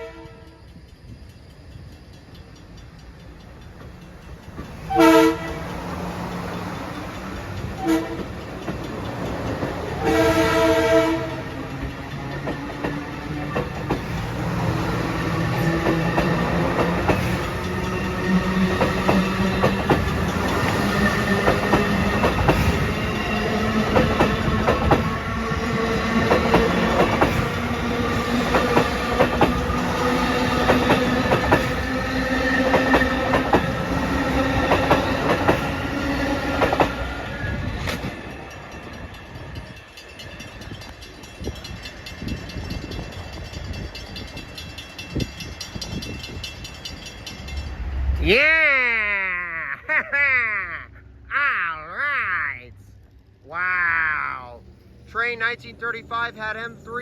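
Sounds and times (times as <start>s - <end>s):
train chord horn blasts: 0.0s - 0.6s, 4.9s - 5.8s, 7.8s - 8.4s, 9.9s - 11.6s
wheels clicking over rail joints: 0.4s - 48.0s.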